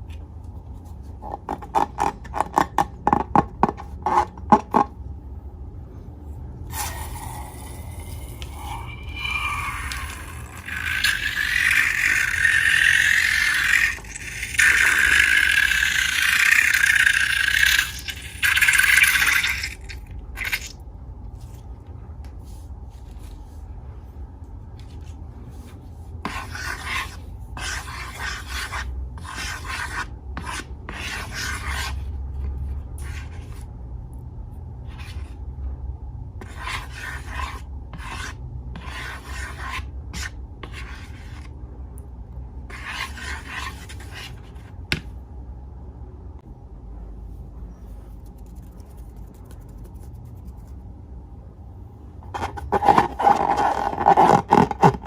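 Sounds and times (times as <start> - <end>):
slime rubbed by hand: 47.9 - 50.9.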